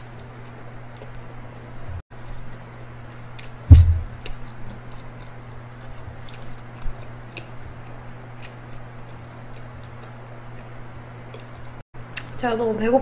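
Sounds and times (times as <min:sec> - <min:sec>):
crunchy chewing: 0:00.0 - 0:03.6, 0:04.2 - 0:11.8
low steady hum: 0:00.0 - 0:13.0
dull thump: 0:03.7 - 0:04.2.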